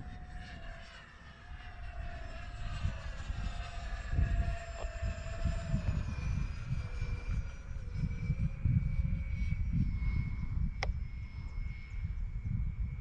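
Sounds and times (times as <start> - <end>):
electric ducted fans whining: 0.0 - 13.0
wind rumble on microphone: 0.0 - 13.0.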